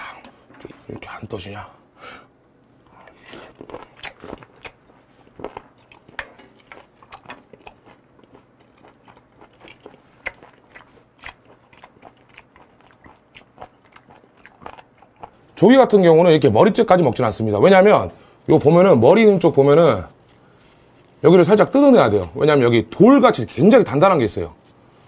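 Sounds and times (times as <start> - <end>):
person chewing with mouth clicks: 2.9 - 15.6.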